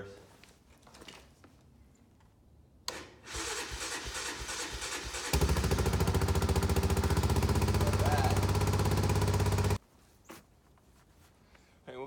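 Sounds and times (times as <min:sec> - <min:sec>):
engine cranking and starting: 0:02.9 - 0:09.8.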